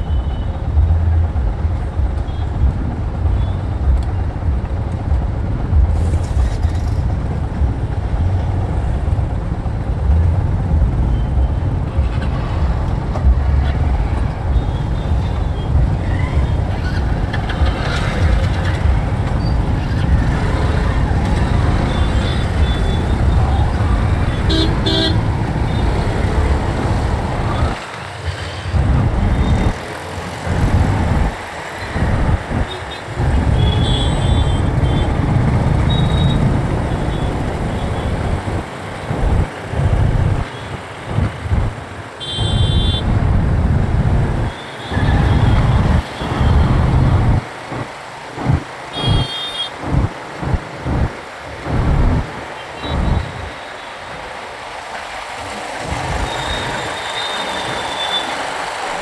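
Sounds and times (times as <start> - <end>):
wind rumble on microphone: 0.0 - 27.8, 28.7 - 29.8, 30.4 - 41.9, 42.5 - 53.6
vehicle horns honking: 20.3 - 26.4, 32.6 - 38.4, 42.2 - 43.1, 48.9 - 50.1.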